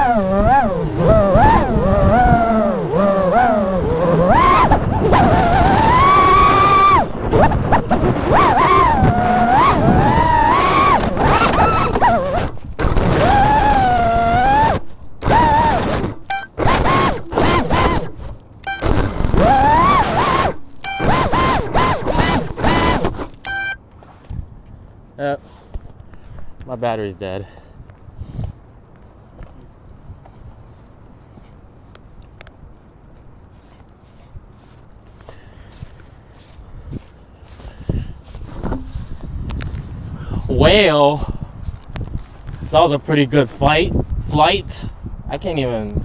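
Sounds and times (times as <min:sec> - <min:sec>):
drone motors whining: 0:00.0 - 0:23.8.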